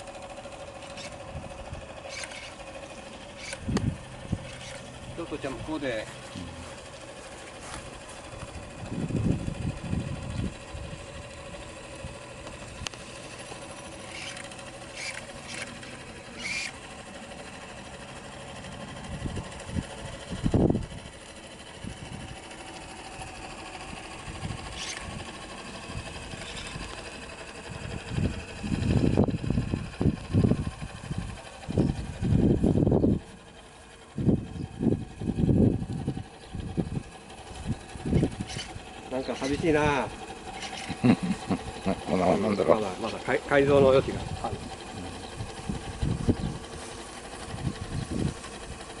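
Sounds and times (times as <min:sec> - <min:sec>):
steam engine running: 0:00.0 - 0:49.0
loud low rumbles: 0:07.8 - 0:12.9, 0:24.2 - 0:33.3, 0:41.0 - 0:48.4.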